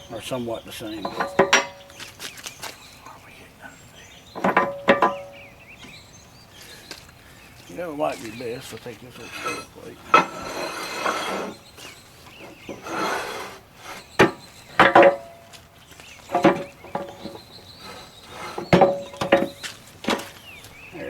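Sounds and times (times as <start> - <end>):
metal scraping on steel table: 0.0 - 1.9, 4.4 - 5.4, 8.0 - 15.5, 16.2 - 20.4
ringing metal clanks: 0.0 - 2.0, 4.4 - 6.0, 7.8 - 13.3, 14.0 - 15.6, 16.2 - 20.4.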